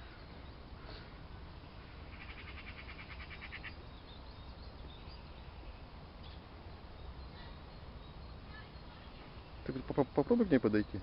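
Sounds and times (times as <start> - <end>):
bird trilling: 2.0 - 5.3.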